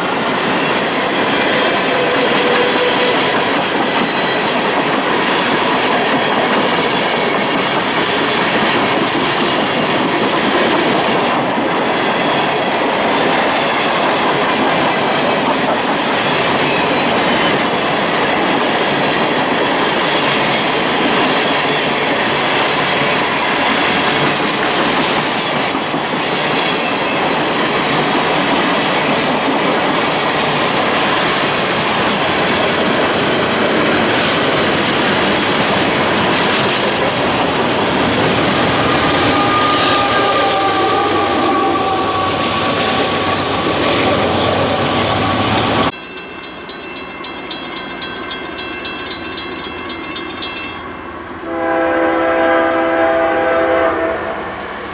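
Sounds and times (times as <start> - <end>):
train cars rolling on rails: 0.0 - 53.8.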